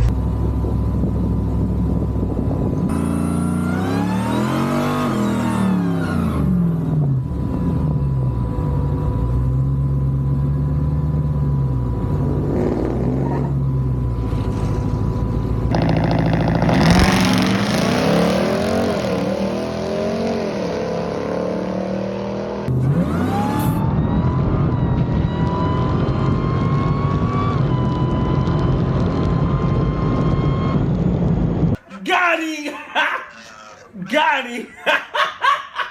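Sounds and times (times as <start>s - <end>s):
pickup engines idling and revving: 0.0s - 23.7s
rising supercharger whine: 0.0s - 31.7s.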